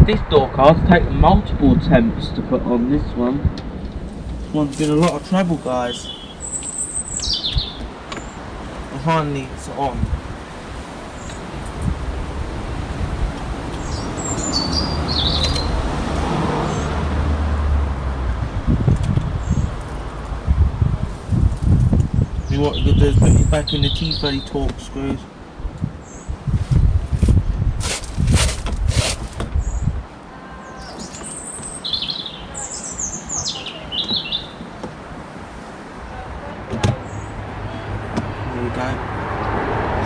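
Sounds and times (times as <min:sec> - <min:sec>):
steady low rumble: 0:00.0 - 0:07.2, 0:25.6 - 0:30.1
handling noise: 0:03.6 - 0:08.4, 0:26.5 - 0:29.8
songbird chirping: 0:04.3 - 0:10.0, 0:13.6 - 0:17.0, 0:22.4 - 0:25.2, 0:30.6 - 0:34.7
rustling knocks: 0:26.6 - 0:29.6.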